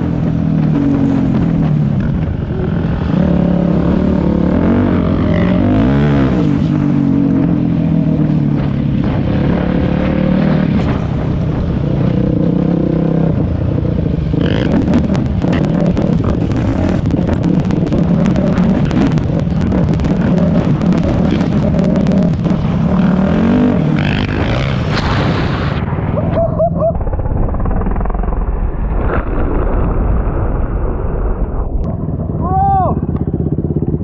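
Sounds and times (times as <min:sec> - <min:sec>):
dirt bike engine revving: 0:00.0 - 0:26.2
harsh crackling noise: 0:00.0 - 0:34.0.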